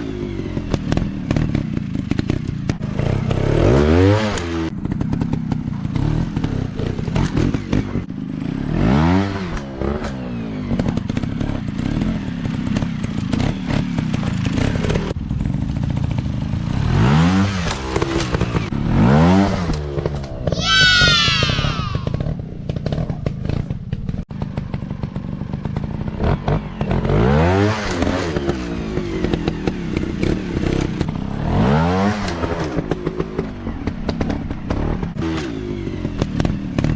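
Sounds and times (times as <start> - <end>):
dirt bike engine revving: 5.9 - 13.9, 25.7 - 33.3.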